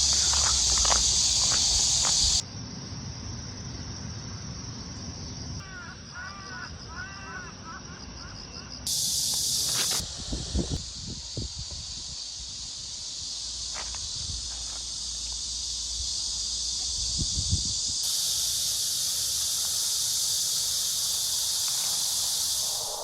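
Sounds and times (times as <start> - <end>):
insects chirping chorus: 0.0 - 23.0.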